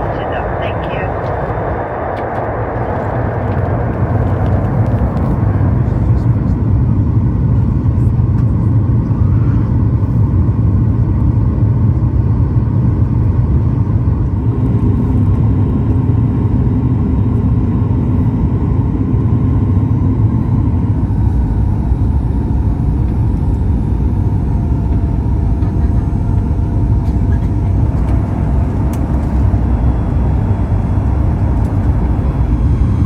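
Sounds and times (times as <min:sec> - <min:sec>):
faint steady tones: 0:00.0 - 0:06.3, 0:19.8 - 0:33.0
airplane cabin engine rumble: 0:00.0 - 0:33.0.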